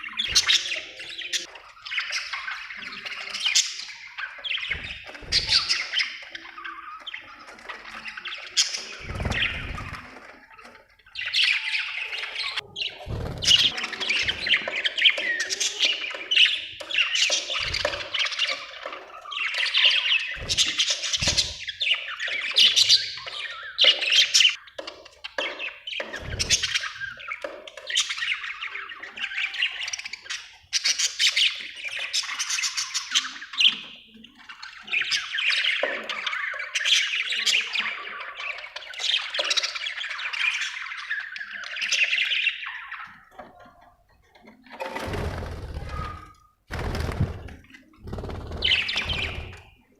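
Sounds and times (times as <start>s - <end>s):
budgerigars chattering and squawking: 0.0s - 24.7s, 25.3s - 43.6s, 45.1s - 49.9s.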